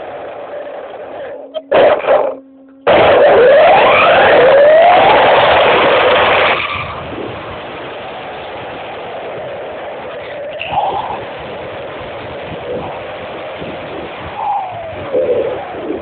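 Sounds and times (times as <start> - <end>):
electric motor whining: 0.0 - 7.4.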